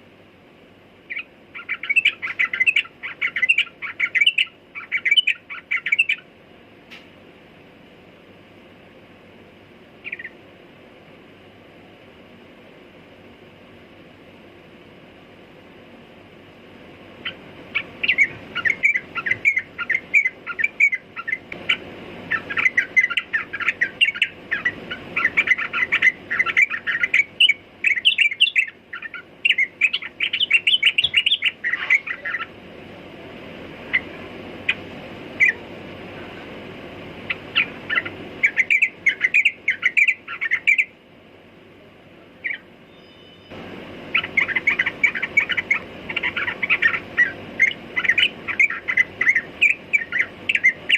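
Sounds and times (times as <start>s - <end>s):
bird chirping: 1.1s - 6.3s, 10.0s - 10.4s, 17.2s - 32.6s, 33.9s - 35.7s, 37.3s - 40.9s, 42.4s - 50.9s.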